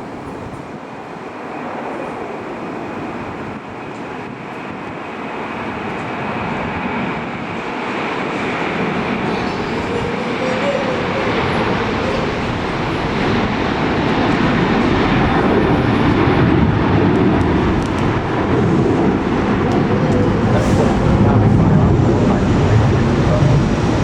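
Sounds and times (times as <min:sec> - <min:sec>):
jet airliner engine rumble: 0:00.0 - 0:24.0.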